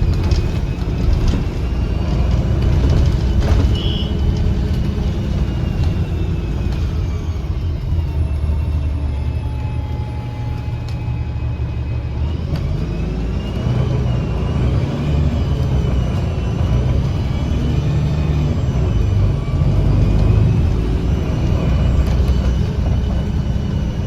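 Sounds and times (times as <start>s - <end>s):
bus engine drone: 0.0s - 24.0s
high wavering engine whistle: 0.0s - 24.0s.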